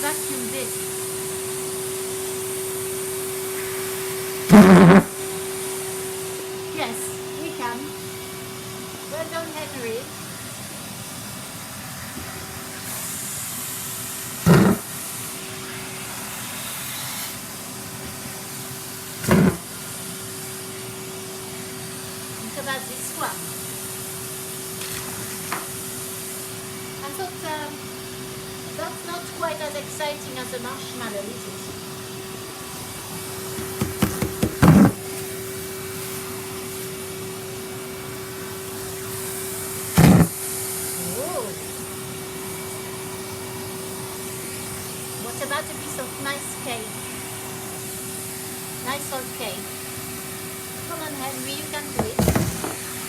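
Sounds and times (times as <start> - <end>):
vacuum cleaner running: 0.0 - 53.0
short loud thumps: 33.8 - 35.0, 40.0 - 40.4
debris clattering up hose: 51.9 - 53.0.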